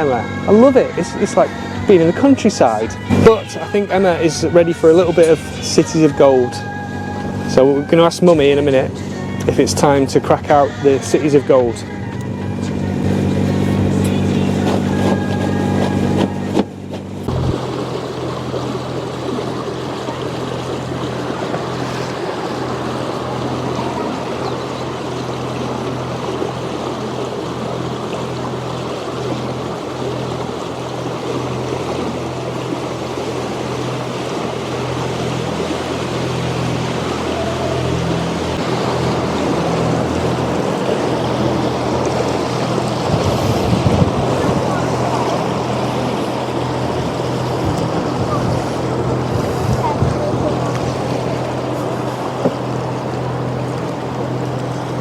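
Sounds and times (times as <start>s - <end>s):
boat engine humming: 0.0s - 55.0s
water rushing along hull: 0.0s - 55.0s.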